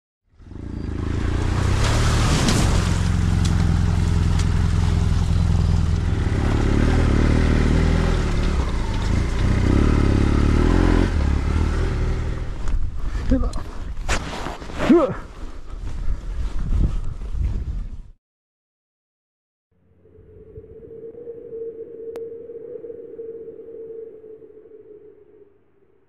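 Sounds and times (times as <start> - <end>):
vehicle engine running: 0.3 - 13.5
road noise: 0.3 - 16.0
wind noise: 15.4 - 18.2.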